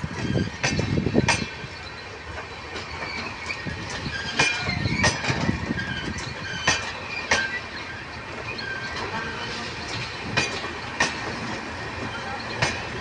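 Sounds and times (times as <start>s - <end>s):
train wheels clacking over rail joints: 0.0s - 13.0s
wheels squealing on rails: 0.0s - 13.0s.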